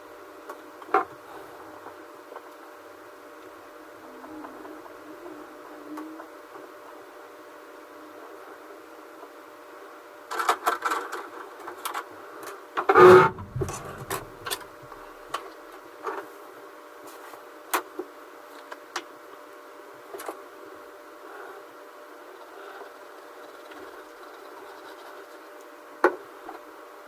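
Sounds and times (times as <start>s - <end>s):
heavy knock: 13.0s - 14.6s
steady hum: 13.0s - 14.6s.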